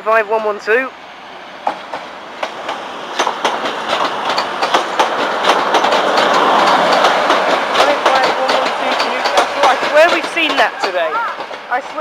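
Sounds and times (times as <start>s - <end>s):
train running noise: 0.0s - 12.0s
train wheels clicking over rail joints: 1.6s - 12.0s.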